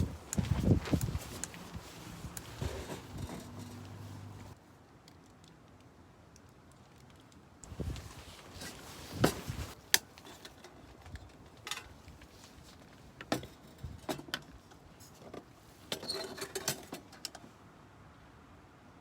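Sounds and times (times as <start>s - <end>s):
small rattles: 0.0s - 4.6s.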